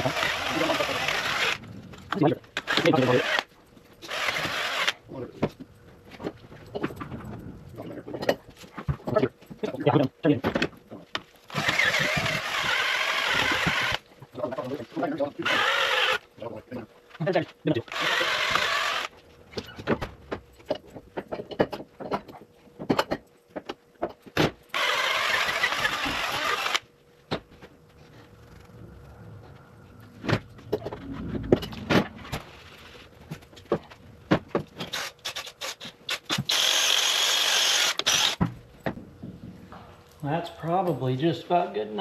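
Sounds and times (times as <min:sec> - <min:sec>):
handheld power tool running: 0:00.0 - 0:01.6, 0:02.6 - 0:05.0, 0:11.5 - 0:14.0, 0:15.4 - 0:16.2, 0:17.9 - 0:19.2, 0:24.7 - 0:26.8, 0:34.9 - 0:38.4.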